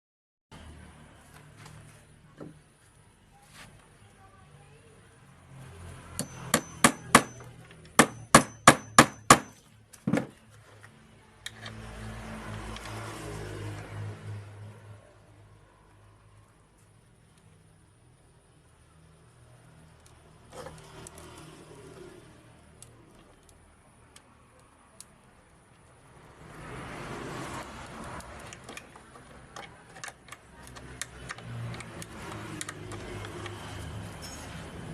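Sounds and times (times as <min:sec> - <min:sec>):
metallic ring: 0:06.2 - 0:07.5, 0:34.2 - 0:34.8
sharp clicks and light knocks: 0:27.8 - 0:33.6.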